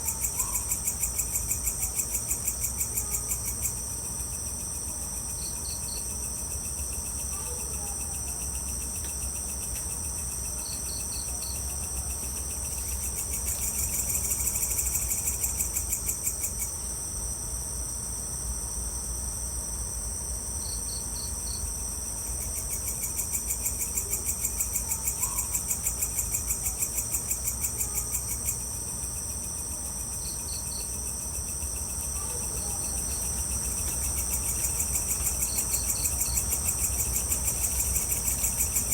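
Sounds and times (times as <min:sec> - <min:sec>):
fast-pulsing insect trill: 0:00.0 - 0:16.8, 0:20.6 - 0:38.9
crickets trilling: 0:00.0 - 0:38.9.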